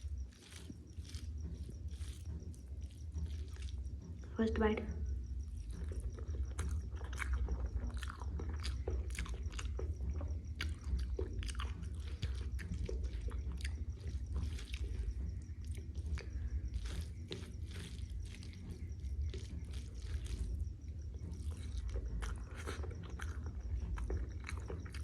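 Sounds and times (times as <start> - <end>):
steady low hum: 0.0 - 25.0
wet chewing and lip-smacking: 0.0 - 25.0.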